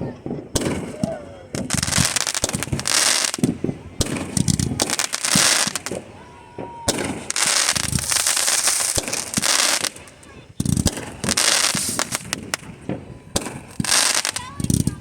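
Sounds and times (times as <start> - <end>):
firework whistling: 0.0 - 15.0
fireworks bangs: 0.0 - 15.0
fireworks crackling: 0.0 - 15.0.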